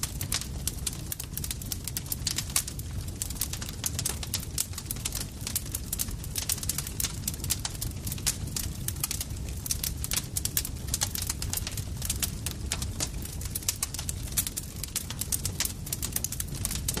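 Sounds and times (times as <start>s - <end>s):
campfire crackling and popping: 0.0s - 17.0s
low rumble of burning wood: 0.0s - 17.0s.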